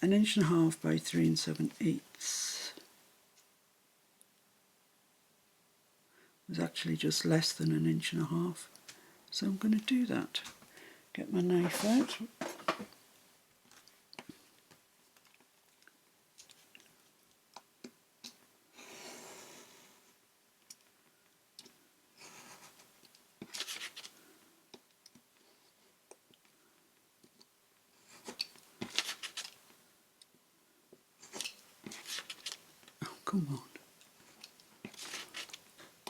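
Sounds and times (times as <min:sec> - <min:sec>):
craft knife cutting paper: 0:28.2 - 0:29.6, 0:34.9 - 0:35.6.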